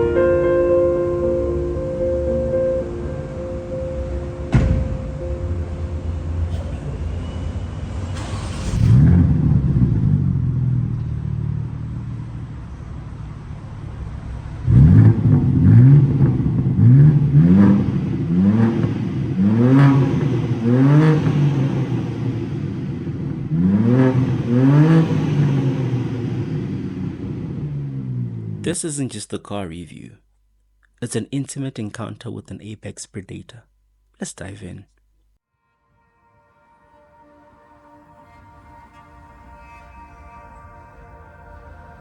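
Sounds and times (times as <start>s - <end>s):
car engine revving: 2.3s - 28.8s.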